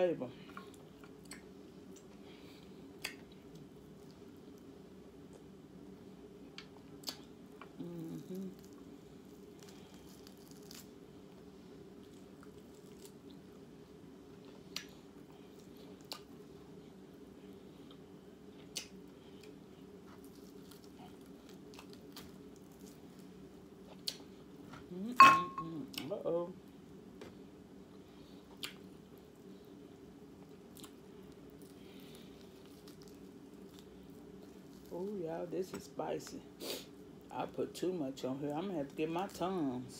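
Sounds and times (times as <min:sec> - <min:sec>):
steady low hum: 0:00.0 - 0:39.9
quiet chewing: 0:06.4 - 0:11.4, 0:14.3 - 0:24.9, 0:28.2 - 0:35.0.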